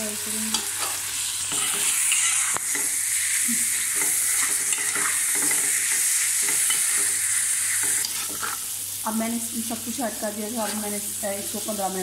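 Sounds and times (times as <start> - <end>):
vegetables sizzling in hot oil: 0.0 - 12.0
utensil scraping pan: 4.0 - 8.7.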